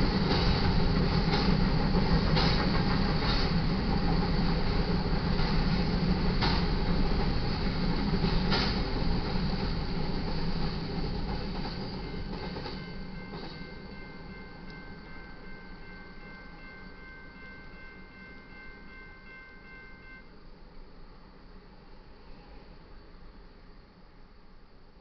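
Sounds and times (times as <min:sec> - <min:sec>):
freight train wheels rumbling: 0:00.0 - 0:23.4
crossing bell ringing: 0:12.0 - 0:20.4.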